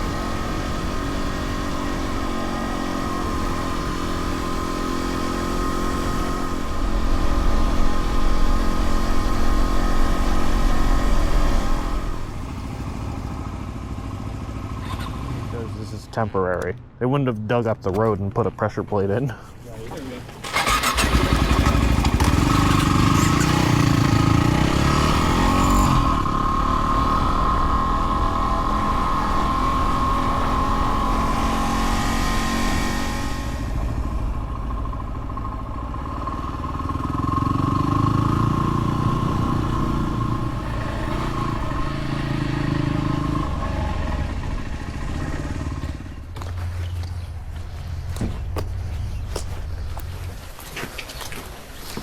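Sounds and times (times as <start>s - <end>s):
dirt bike engine running: 0.0s - 16.6s, 20.1s - 52.0s.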